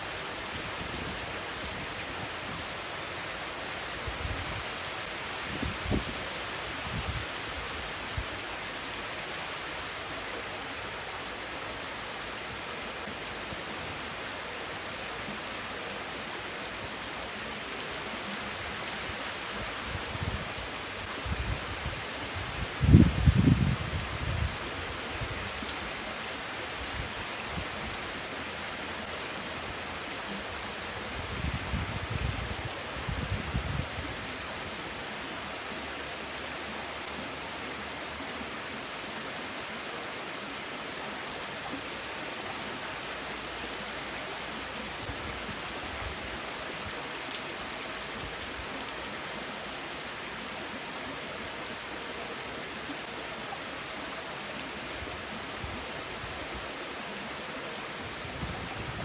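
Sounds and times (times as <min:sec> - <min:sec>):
steady rain falling: 0:00.0 - 0:59.0
wind rumbling on microphone: 0:04.0 - 0:04.7, 0:05.4 - 0:08.3, 0:19.8 - 0:25.6, 0:31.1 - 0:34.3, 0:58.2 - 0:59.0.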